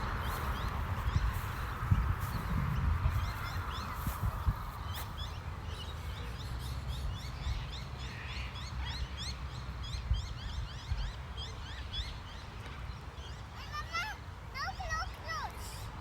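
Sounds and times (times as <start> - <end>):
low rumble on microphone: 0.0 - 5.7
flock of birds chirping: 0.0 - 14.1.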